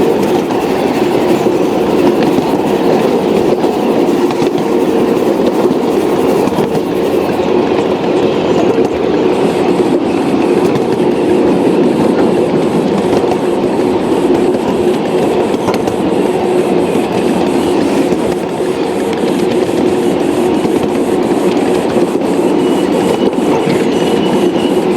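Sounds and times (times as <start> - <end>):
model train motor hum: 0.0 - 7.6.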